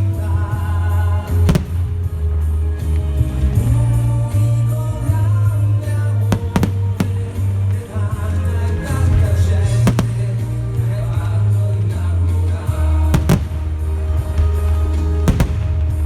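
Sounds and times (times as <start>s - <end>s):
bass-heavy music over loudspeakers: 0.0s - 16.0s
fireworks bangs: 1.2s - 3.0s, 5.9s - 16.0s.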